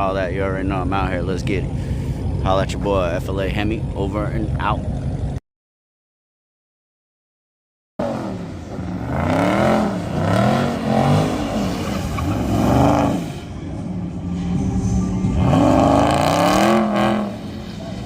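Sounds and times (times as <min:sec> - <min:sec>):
car engine revving hard: 0:08.0 - 0:13.5, 0:15.3 - 0:18.0.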